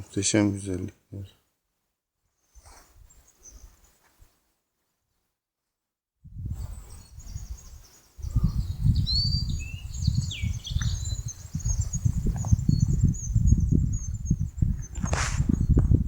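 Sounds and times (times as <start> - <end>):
wind rumbling on microphone: 6.2 - 16.0
birds chirping and singing: 6.9 - 15.9.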